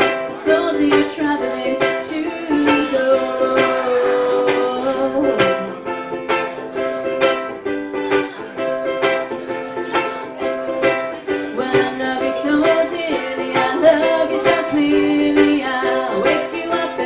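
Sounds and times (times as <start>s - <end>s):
acoustic plucked string instrument: 0.0s - 17.0s.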